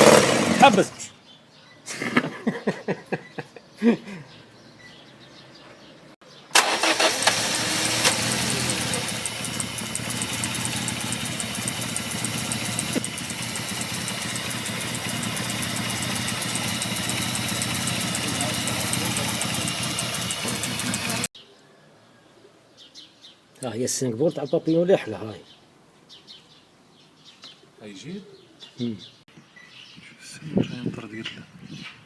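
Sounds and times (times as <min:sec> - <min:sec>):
car engine starting and running: 0:00.0 - 0:00.8, 0:06.5 - 0:21.3.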